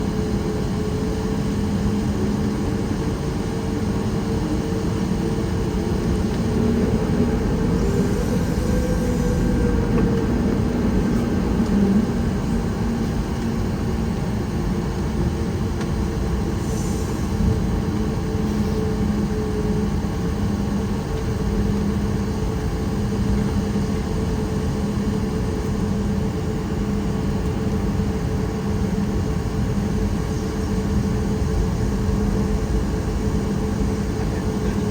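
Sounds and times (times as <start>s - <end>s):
low wavering hum: 0.0s - 27.0s
airplane engine rumble: 0.0s - 34.9s.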